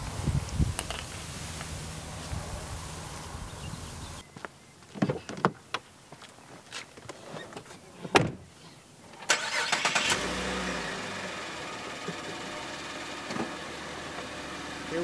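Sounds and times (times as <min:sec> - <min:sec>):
car door thud: 0:08.1 - 0:08.4
car engine starting and idling: 0:09.2 - 0:15.0.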